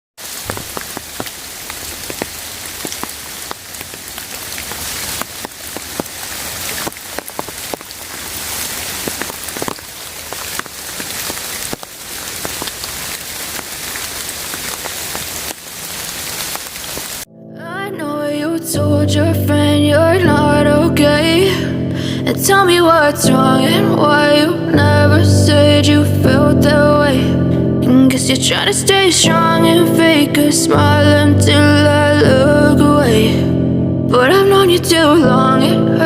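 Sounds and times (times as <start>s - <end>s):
raindrops ticking: 0.2s - 17.3s
steady rain hiss: 0.2s - 17.3s.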